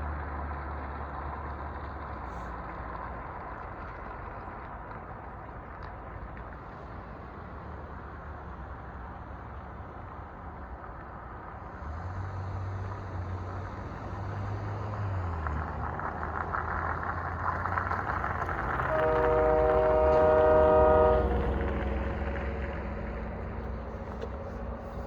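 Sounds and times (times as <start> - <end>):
locomotive engine running: 15.2 - 25.0
train horn blast: 18.7 - 22.4.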